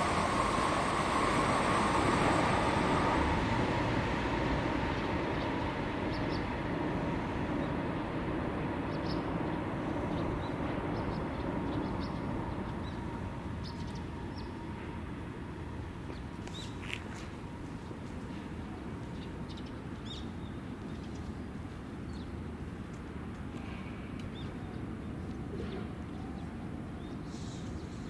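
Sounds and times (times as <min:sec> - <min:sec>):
train rumbling past: 0:00.0 - 0:19.4.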